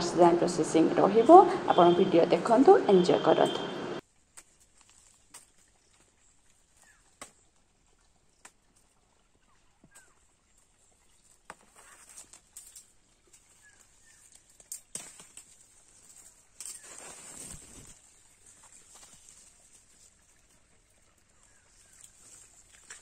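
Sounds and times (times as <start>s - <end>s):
steady high hiss: 0.0s - 4.0s
light clicks and rustles: 4.2s - 7.4s, 11.2s - 20.6s, 21.2s - 23.0s.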